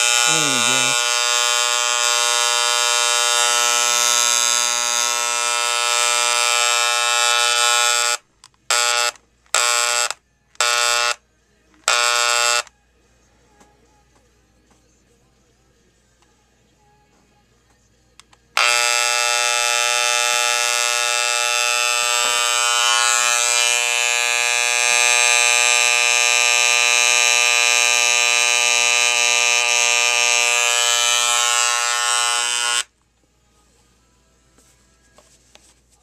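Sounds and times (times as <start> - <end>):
electric hair clipper buzzing: 0.0 - 11.2, 11.8 - 12.7, 18.2 - 33.0.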